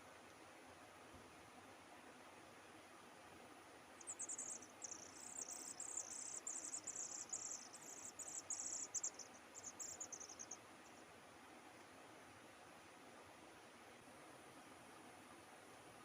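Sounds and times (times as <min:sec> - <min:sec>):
faint steady hiss: 0:00.0 - 0:16.0
cricket chirping: 0:04.0 - 0:11.0.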